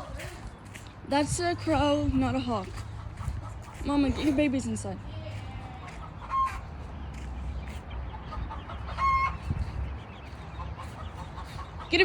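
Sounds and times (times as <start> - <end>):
chickens clucking: 0.0 - 12.0
short pitched chicken calls: 6.0 - 6.7, 8.3 - 9.5.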